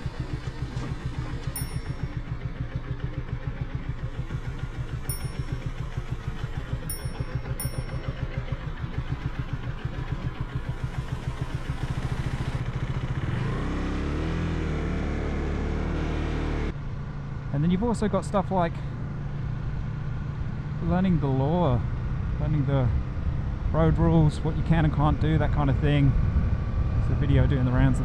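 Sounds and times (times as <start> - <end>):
motorcycle engine revving: 0.0 - 16.8.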